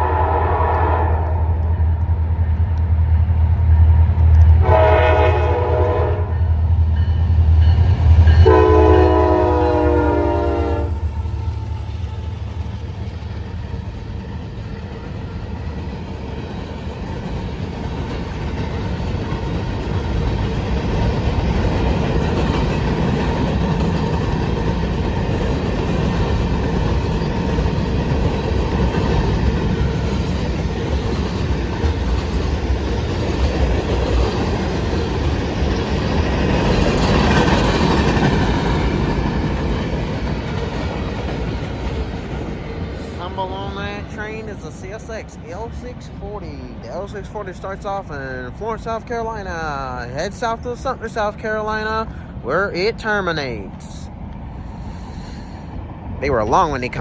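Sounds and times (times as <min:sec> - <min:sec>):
train horn blasts: 0:00.0 - 0:01.7, 0:04.6 - 0:06.8, 0:08.3 - 0:12.2
locomotive engine rumbling: 0:00.0 - 0:57.0
train cars clickety-clack: 0:00.0 - 0:57.0.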